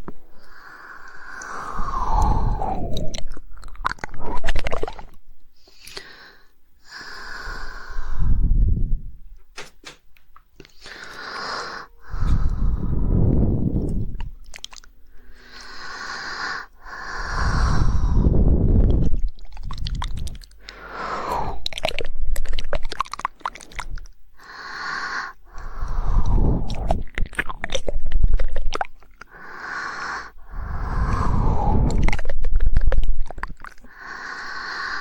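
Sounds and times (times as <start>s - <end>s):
breathy mouth noises: 0.0s - 9.2s, 10.6s - 35.0s
wet tongue clicks: 0.4s - 6.1s, 13.9s - 15.8s, 18.8s - 24.2s, 25.5s - 29.4s, 30.6s - 34.7s.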